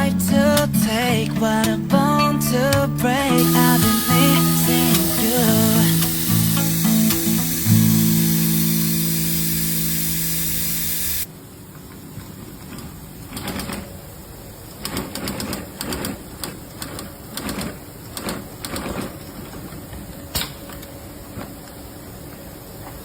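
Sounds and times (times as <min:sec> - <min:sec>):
background music: 0:00.0 - 0:10.8
sewing machine stitching: 0:03.4 - 0:11.3, 0:14.8 - 0:19.5
sharp click: 0:03.5 - 0:08.0.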